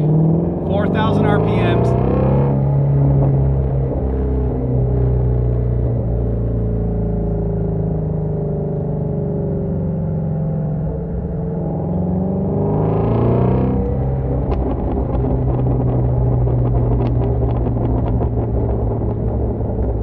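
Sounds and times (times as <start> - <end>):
car exhaust accelerating: 0.0 - 20.0.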